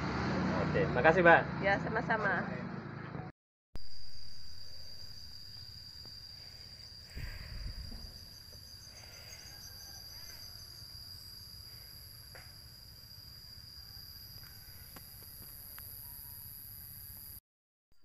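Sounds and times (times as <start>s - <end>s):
high insect drone: 3.8s - 17.4s.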